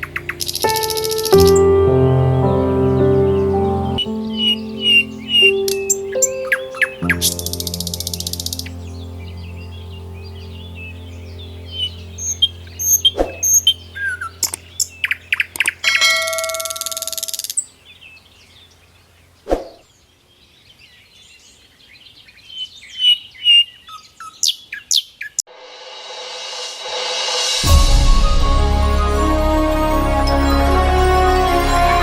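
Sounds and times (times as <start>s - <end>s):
small birds chirping: 0.0s - 25.4s
ringing bell-like tone with hiss: 15.8s - 17.6s
rising swell: 25.5s - 32.0s.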